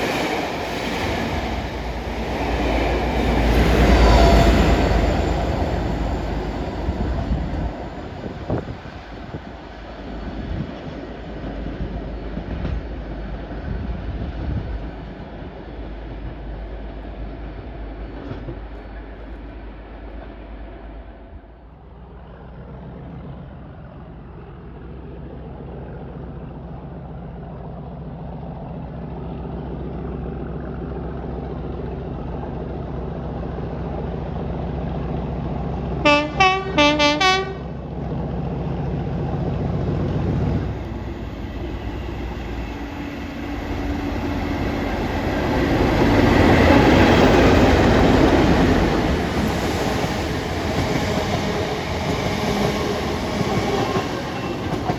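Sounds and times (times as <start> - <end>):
diesel train engine drone: 0.0 - 54.9
train wheel and rail noise: 0.0 - 54.9
train horn blasts: 36.0 - 37.7.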